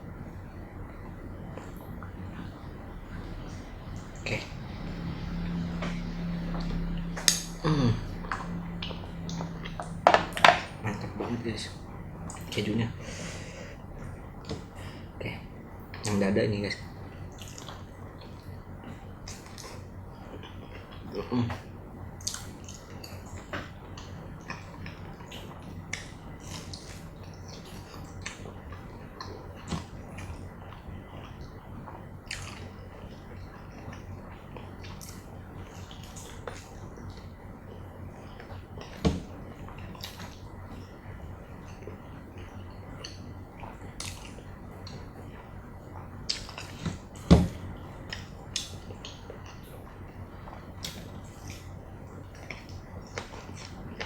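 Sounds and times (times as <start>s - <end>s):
low steady hum: 0.0s - 54.0s
mouth chewing and smacking: 15.9s - 54.0s.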